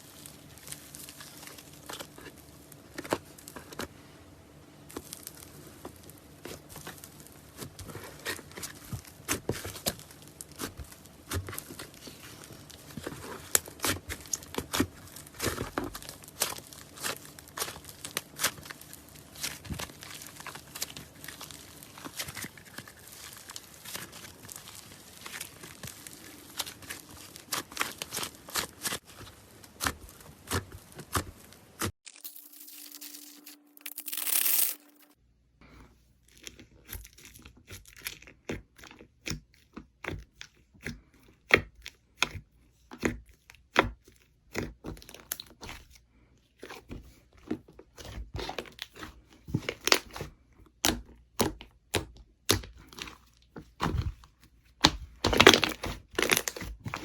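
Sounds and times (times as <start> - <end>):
slime squeezed crackling: 4.9 - 35.0.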